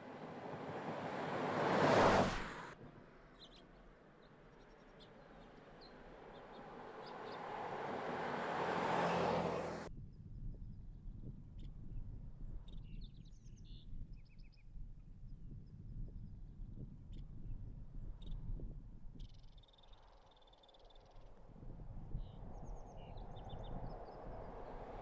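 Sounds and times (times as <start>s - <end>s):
vehicle driving past: 0.0s - 2.8s, 5.3s - 9.9s, 22.2s - 25.0s
birds chirping faintly: 3.2s - 9.9s.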